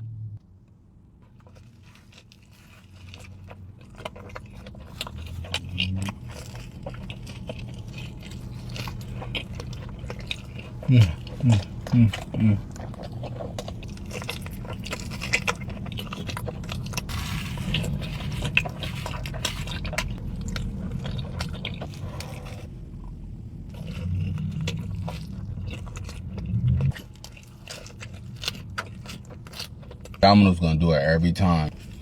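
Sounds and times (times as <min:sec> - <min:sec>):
pizza crunching while chewing: 0:01.2 - 0:32.0.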